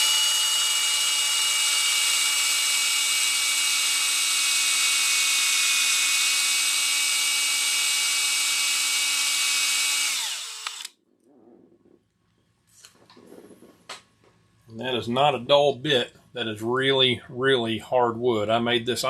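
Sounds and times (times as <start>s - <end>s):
electric drill boring into wood: 0.0s - 10.9s.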